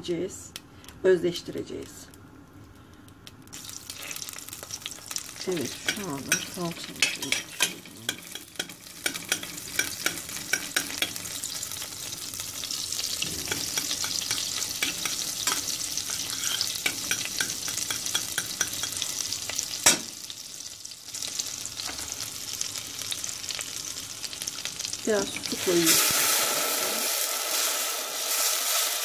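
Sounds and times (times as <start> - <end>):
paste sizzling in hot oil: 3.5 - 29.0
metal spoon scraping a pot: 5.8 - 11.2, 13.2 - 19.0.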